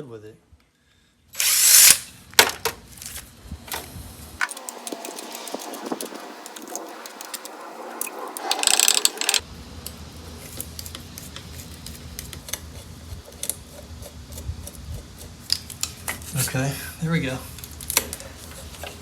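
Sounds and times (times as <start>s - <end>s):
ratchet wrench clicking: 1.4s - 2.1s, 8.4s - 9.4s.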